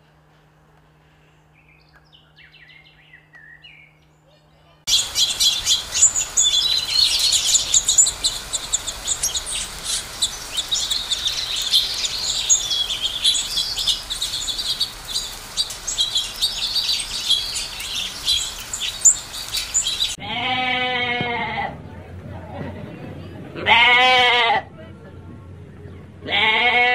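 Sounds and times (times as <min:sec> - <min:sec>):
finches chirping: 0:04.9 - 0:20.2
sheep bleating: 0:20.2 - 0:21.8, 0:23.6 - 0:24.7, 0:26.2 - 0:26.9.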